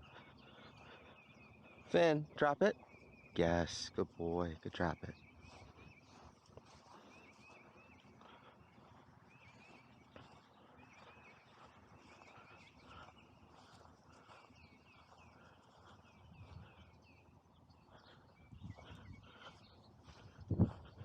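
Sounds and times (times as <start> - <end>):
distant songbird chirping: 0.0 - 21.0.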